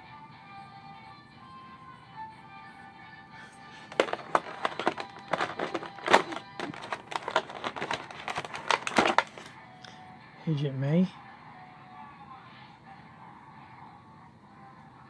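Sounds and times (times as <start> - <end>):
plastic pieces clicking and crinkling: 3.7 - 9.5.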